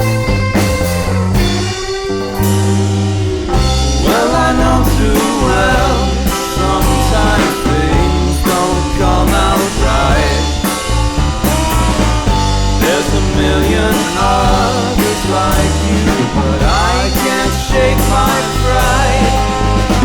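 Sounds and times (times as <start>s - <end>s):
bass line: 0.0s - 20.0s
steady drum beat: 0.0s - 20.0s
person singing: 3.5s - 20.0s.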